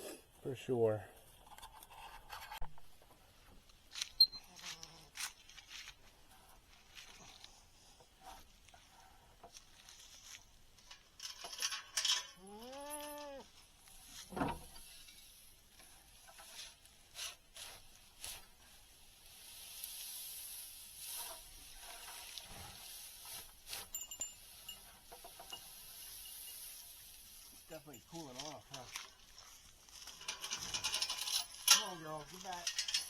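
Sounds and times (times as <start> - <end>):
rustling: 1.2 - 33.0
goat bleating: 12.4 - 13.4.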